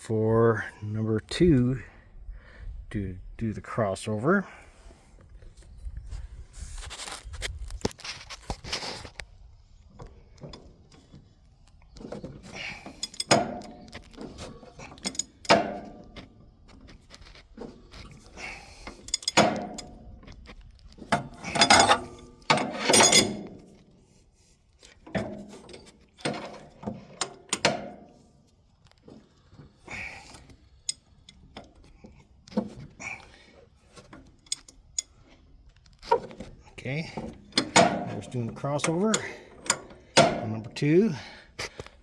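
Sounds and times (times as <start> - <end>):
metal tools clinking and scraping: 12.0 - 20.1, 21.0 - 23.9, 24.8 - 28.1, 33.9 - 40.9.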